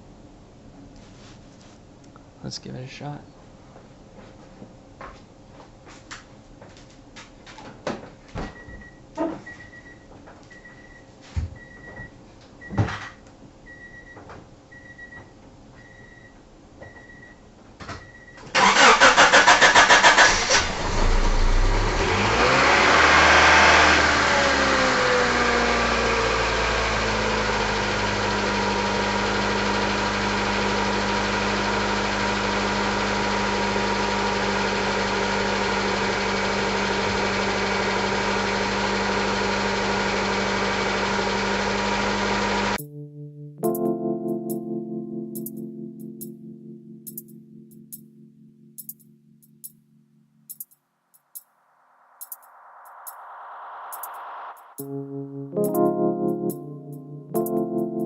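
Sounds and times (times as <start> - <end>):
car engine starting and idling: 18.5 - 42.8
repeating beep: 52.2 - 54.9.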